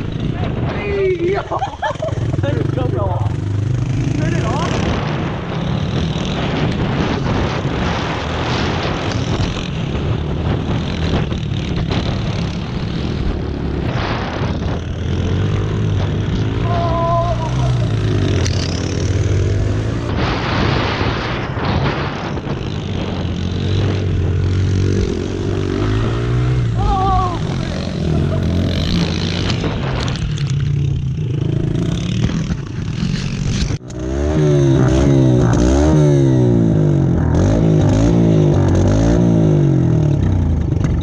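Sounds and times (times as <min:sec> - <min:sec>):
small motorbike engine running: 0:22.2 - 0:36.1, 0:37.4 - 0:41.0.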